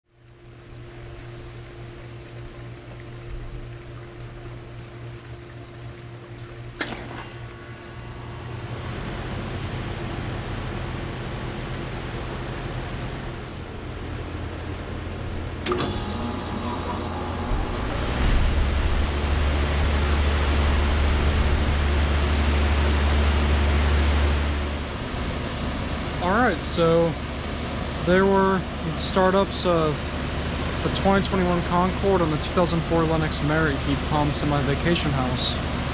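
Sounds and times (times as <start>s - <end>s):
heat pump low hum: 0.0s - 35.9s
heat pump whoosh: 0.5s - 35.9s
heat pump switch click: 6.7s - 7.4s, 15.6s - 18.0s.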